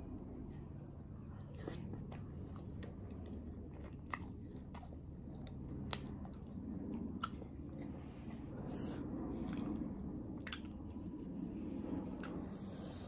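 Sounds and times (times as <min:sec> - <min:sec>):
person chewing: 0:01.2 - 0:07.9.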